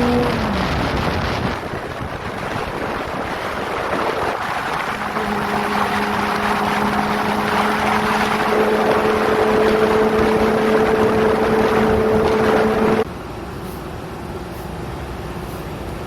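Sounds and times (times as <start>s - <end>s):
motorcycle engine at high revs: 0.0s - 1.4s, 4.1s - 13.1s
wind rush: 0.0s - 13.1s.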